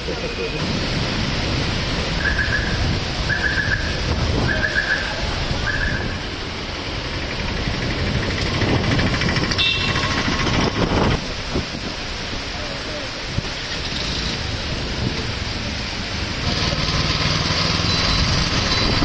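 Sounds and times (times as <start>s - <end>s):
heavy rain: 0.0s - 19.0s
passing vehicles: 0.0s - 19.0s
short high beeps: 17.8s - 19.0s.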